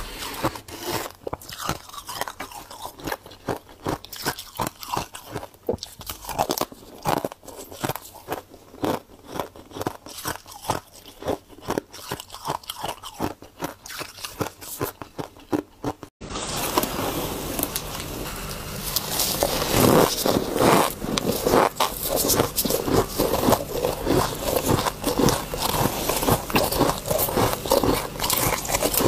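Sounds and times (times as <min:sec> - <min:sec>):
rough scraping: 0:00.0 - 0:01.2, 0:16.2 - 0:29.0
crunchy frost being chewed: 0:00.0 - 0:29.0.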